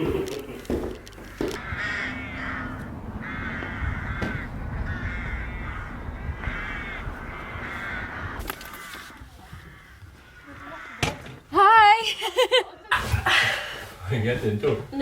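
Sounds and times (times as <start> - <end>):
crows cawing: 1.3 - 11.5.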